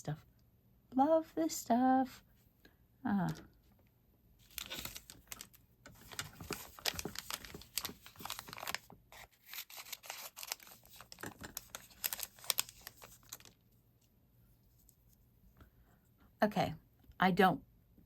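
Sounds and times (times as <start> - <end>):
plastic wrapper crinkling and tearing: 4.4 - 13.6.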